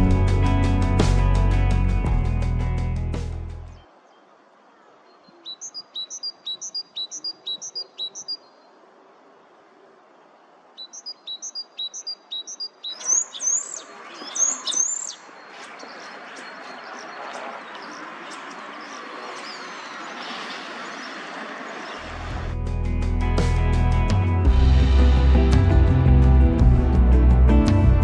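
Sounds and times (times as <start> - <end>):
songbird singing: 3.6 - 22.3.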